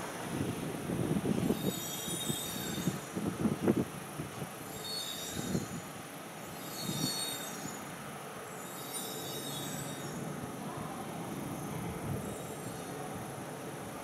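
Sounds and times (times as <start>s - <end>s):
train rumbling on track: 0.0s - 14.0s.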